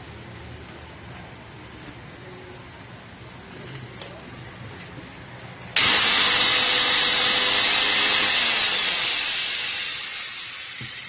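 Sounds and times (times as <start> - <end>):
electric cutter motor whirring: 5.8 - 11.0.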